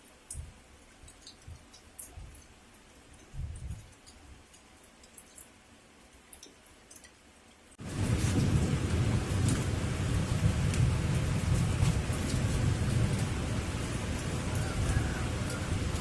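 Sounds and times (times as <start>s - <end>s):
heavy rain with low rumble: 0.0s - 16.0s
faint ticks: 0.2s - 7.2s.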